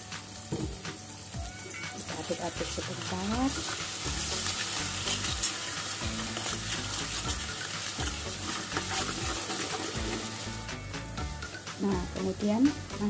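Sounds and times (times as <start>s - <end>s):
paste sizzling in a wok: 0.0s - 13.0s
spatula scraping a pan: 2.8s - 10.4s.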